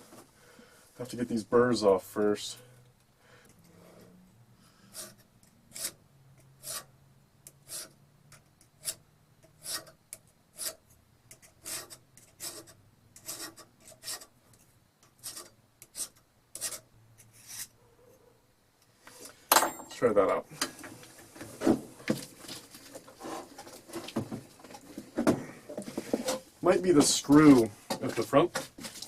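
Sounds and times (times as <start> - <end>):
hand file rasping on metal: 4.8 - 6.0, 6.6 - 6.9, 7.6 - 8.0, 8.8 - 10.8, 11.4 - 14.3, 15.2 - 17.7.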